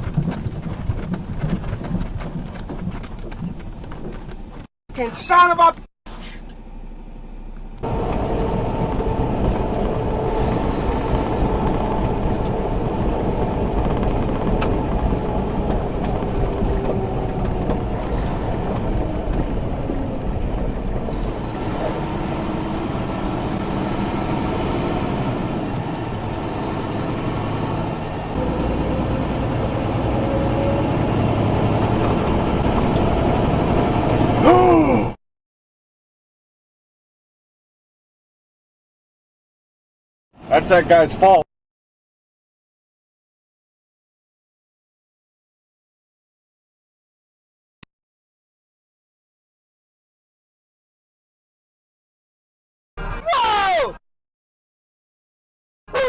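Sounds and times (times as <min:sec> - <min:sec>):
truck engine and road noise: 0:00.0 - 0:35.2, 0:40.4 - 0:41.5.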